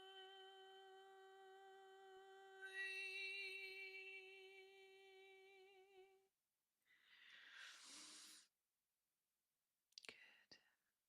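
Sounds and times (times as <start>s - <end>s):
woman humming a long tone: 0.0s - 6.2s
breath: 6.9s - 8.5s.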